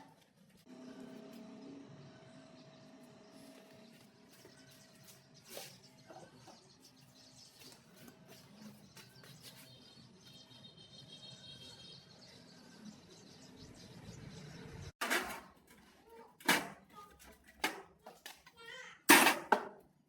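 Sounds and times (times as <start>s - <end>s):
faint high bird chirping: 1.6s - 14.9s.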